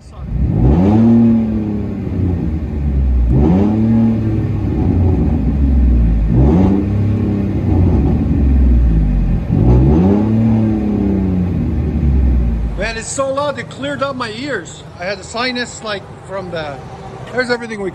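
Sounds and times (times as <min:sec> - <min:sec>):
truck engine revving: 0:00.0 - 0:13.5.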